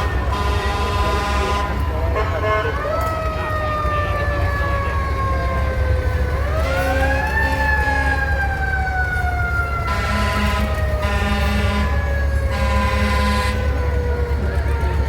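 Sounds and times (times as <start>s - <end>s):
fire truck siren wailing: 0.0s - 15.0s.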